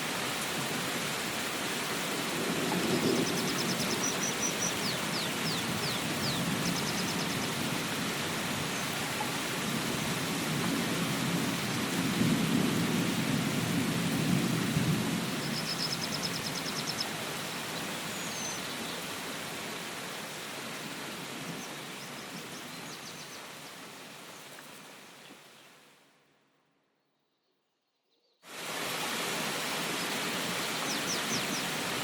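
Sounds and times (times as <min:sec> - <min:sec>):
steady rain: 0:00.0 - 0:26.2, 0:28.5 - 0:32.0.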